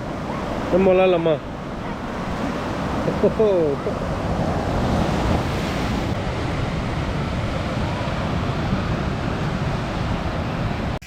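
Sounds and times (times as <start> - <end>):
sea surf washing on beach: 0.0 - 11.0
wind buffeting microphone: 0.0 - 11.0.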